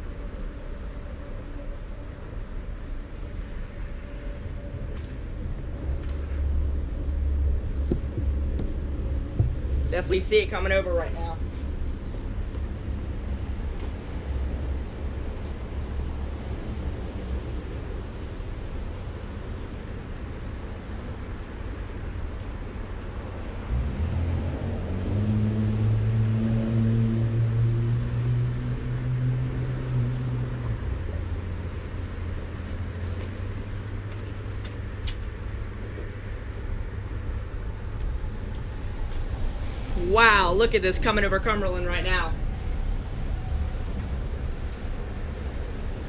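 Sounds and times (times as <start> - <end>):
traffic and wind noise: 0.0 - 46.0
vehicle engine low hum: 0.0 - 46.0
wind buffeting microphone: 3.3 - 21.7.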